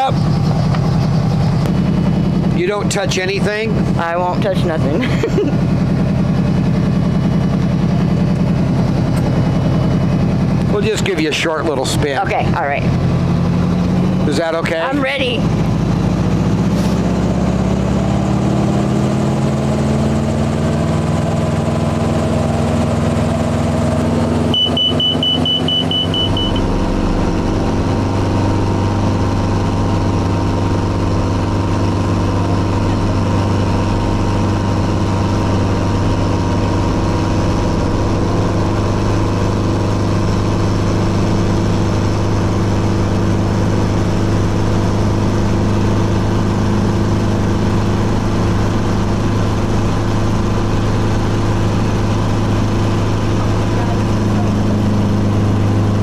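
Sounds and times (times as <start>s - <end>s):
rapid beeping warning tone: 24.5s - 26.8s.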